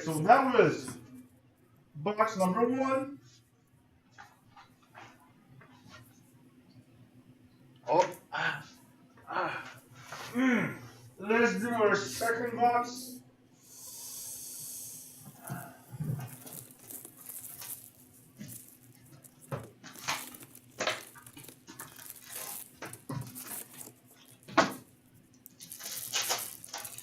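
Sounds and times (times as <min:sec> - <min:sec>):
wrapping crinkling and tearing: 0:14.6 - 0:27.0.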